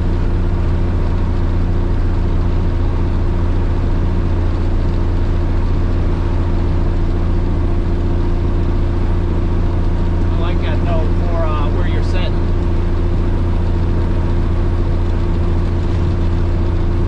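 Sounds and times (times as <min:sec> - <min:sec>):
diesel truck engine drone: 0:00.0 - 0:17.0
road noise: 0:05.4 - 0:17.0.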